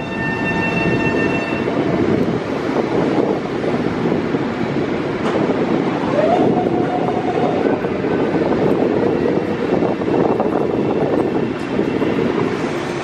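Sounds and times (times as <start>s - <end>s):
train equipment rumbling: 0.0s - 13.0s.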